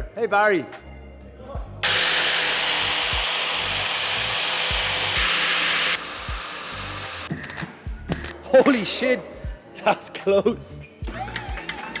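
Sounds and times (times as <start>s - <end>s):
power tool hissing: 1.8s - 7.6s.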